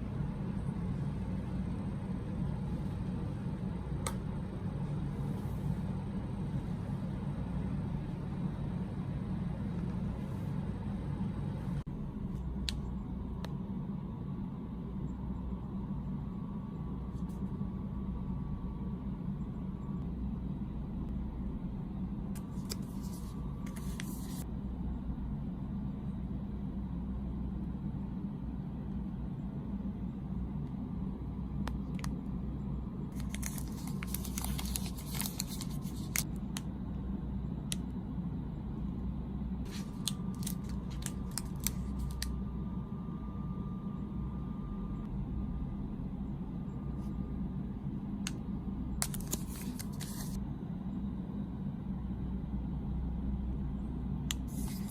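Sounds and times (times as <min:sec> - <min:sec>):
steady low hum: 0:00.0 - 0:54.9
plastic wrapper crinkling and tearing: 0:33.1 - 0:36.4, 0:39.7 - 0:42.3, 0:49.0 - 0:50.4.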